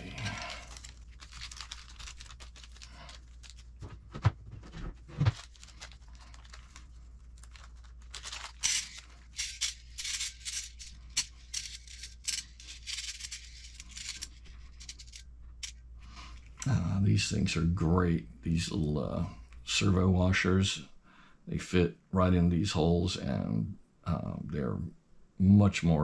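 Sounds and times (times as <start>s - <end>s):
plastic bag crinkling and tearing: 0.0s - 4.1s, 5.0s - 15.2s.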